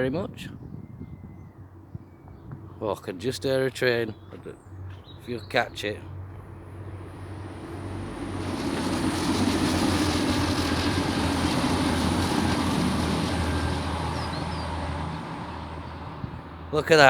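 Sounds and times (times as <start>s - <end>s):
train passing: 4.7s - 17.0s.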